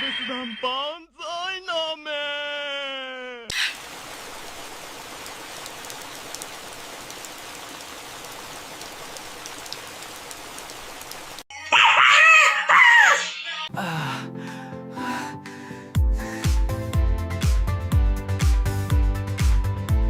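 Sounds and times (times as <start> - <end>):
steady hiss like rain: 3.6 - 11.4.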